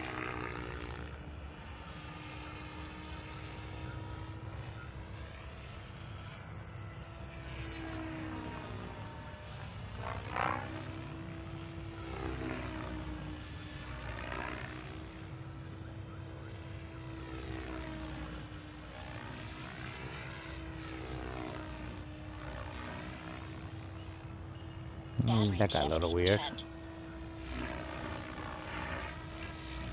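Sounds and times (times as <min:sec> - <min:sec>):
rc helicopter motor whine: 0:00.0 - 0:29.9
steady low hum: 0:00.0 - 0:29.9.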